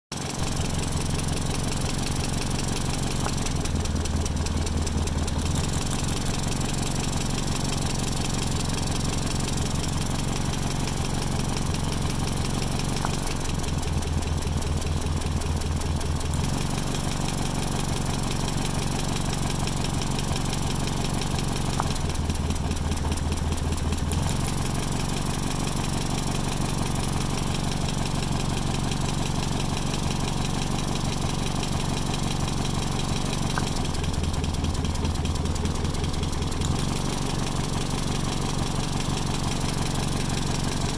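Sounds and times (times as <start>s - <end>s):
engine idling: 0.1s - 40.9s
rough uneven engine idle: 0.1s - 40.9s.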